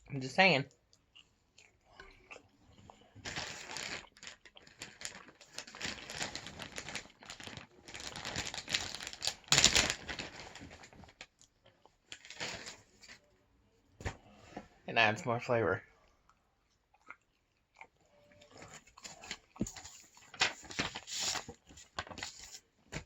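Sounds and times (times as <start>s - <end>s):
crinkling and rustling: 2.8s - 13.3s, 18.4s - 23.0s.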